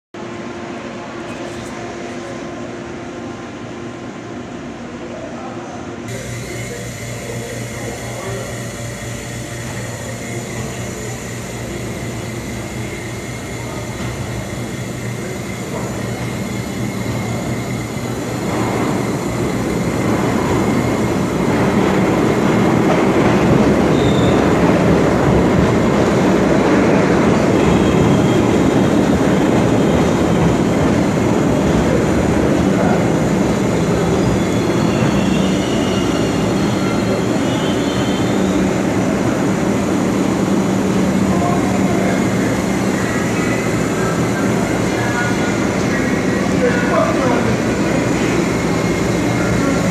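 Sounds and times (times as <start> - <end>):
subway train wheels rumbling on rails: 0.1 - 49.9.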